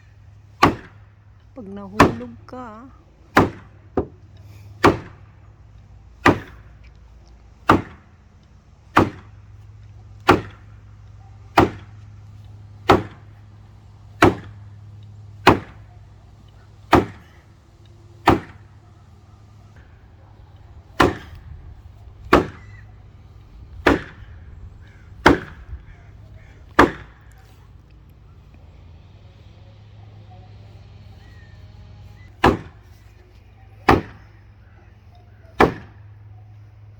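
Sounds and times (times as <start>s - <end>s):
hammer driving fence post: 0.6s - 1.0s, 2.0s - 2.4s, 3.3s - 5.3s, 6.2s - 6.7s, 7.6s - 8.2s, 8.9s - 9.4s, 10.2s - 10.7s, 11.6s - 12.0s, 12.8s - 13.4s, 14.2s - 14.7s, 15.4s - 15.9s, 16.9s - 18.8s, 21.0s - 21.5s, 22.2s - 22.8s, 23.8s - 24.3s, 25.2s - 25.8s, 26.6s - 27.4s, 32.3s - 33.0s, 33.9s - 34.3s, 35.6s - 36.0s.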